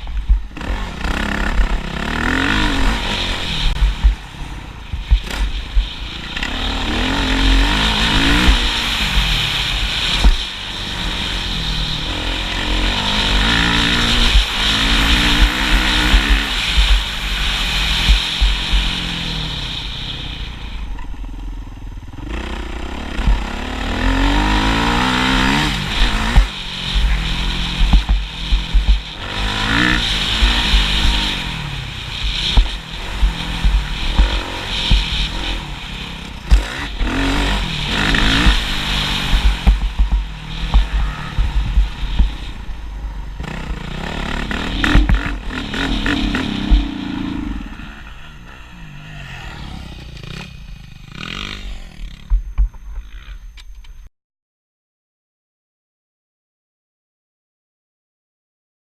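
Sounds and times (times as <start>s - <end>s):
motorcycle engine revving: 0.0s - 53.7s.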